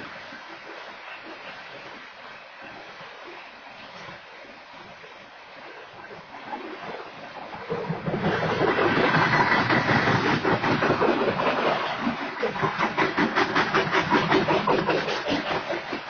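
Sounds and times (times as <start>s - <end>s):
freight train wheels clattering: 8.0s - 16.0s.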